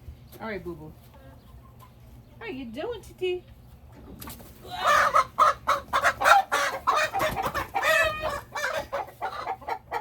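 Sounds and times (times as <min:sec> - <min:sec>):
hen squawking and clucking: 0:04.4 - 0:10.0.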